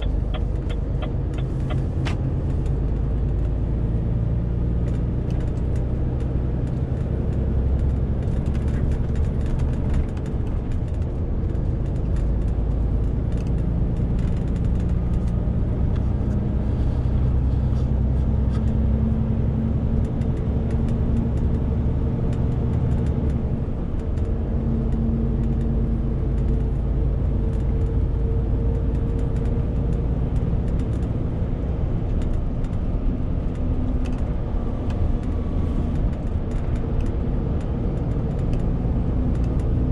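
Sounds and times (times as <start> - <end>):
truck diesel engine running: 0.0 - 2.6
road and tyre noise: 0.0 - 39.9.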